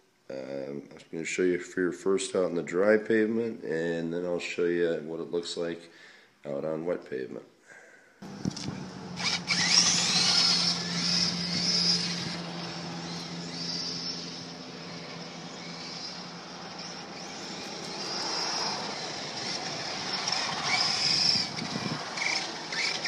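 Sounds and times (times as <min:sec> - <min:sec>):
electric motor whine: 0:08.2 - 0:23.0
tyre noise on pavement: 0:08.2 - 0:23.0.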